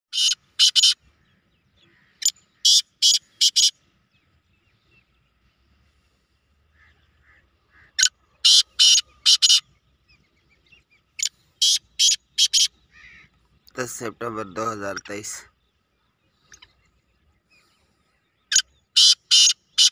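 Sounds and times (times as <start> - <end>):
bird harsh scratchy calls: 0.1 - 1.0, 2.0 - 3.8, 6.8 - 9.7, 11.2 - 13.5, 18.5 - 19.9.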